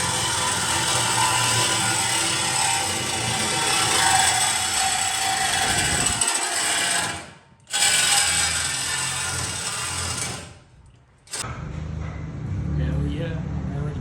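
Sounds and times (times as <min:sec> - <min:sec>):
power tool rasping through metal: 0:00.0 - 0:10.7.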